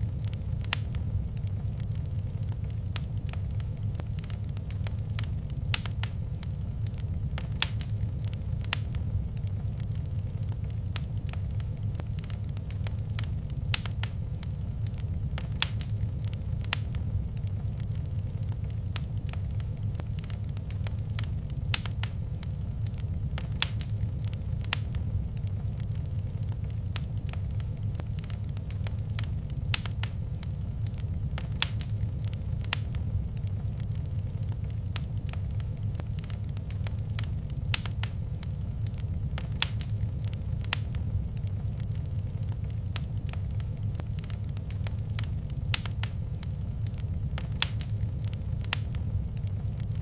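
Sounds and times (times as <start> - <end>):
fire crackling and popping: 0.0 - 50.0
wood fire flames rumbling: 0.0 - 50.0.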